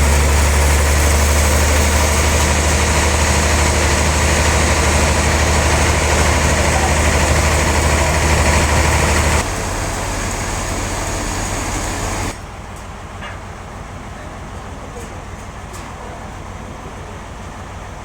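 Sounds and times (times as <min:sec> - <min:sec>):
loud machinery hiss: 0:00.0 - 0:12.4
sawmill motor hum: 0:00.0 - 0:12.4.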